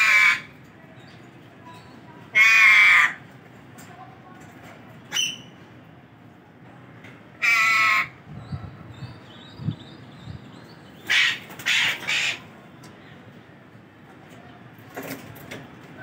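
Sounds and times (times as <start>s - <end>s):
parrots squawking: 7.4s - 8.2s, 11.0s - 12.5s.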